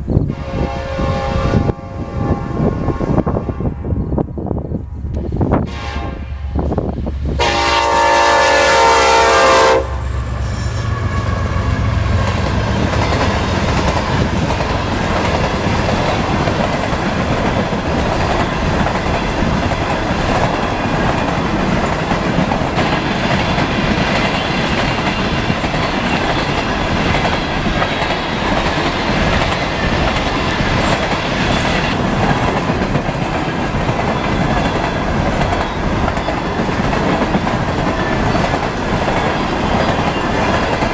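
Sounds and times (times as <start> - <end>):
train rumble and wheel clatter: 0.0 - 40.9
locomotive air horn blast: 0.3 - 3.8, 5.6 - 6.6, 7.4 - 12.1.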